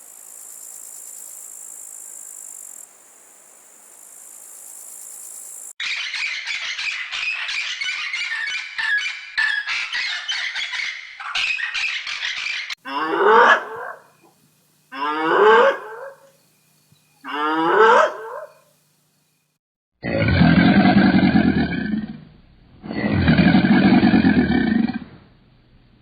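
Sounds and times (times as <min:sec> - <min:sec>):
harsh bird squawking: 0:05.8 - 0:14.0
farm animal calling: 0:05.8 - 0:16.4, 0:17.1 - 0:18.6.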